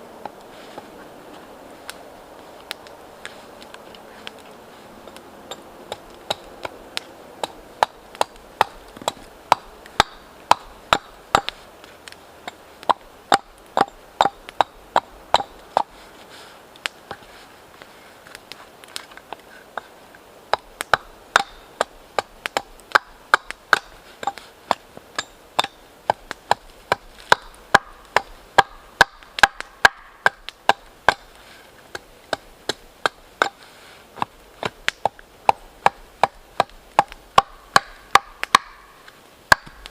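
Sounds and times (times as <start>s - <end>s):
blade chopping wood: 5.1s - 11.6s, 12.4s - 15.9s, 20.5s - 33.6s, 34.2s - 38.9s, 39.5s - 39.9s.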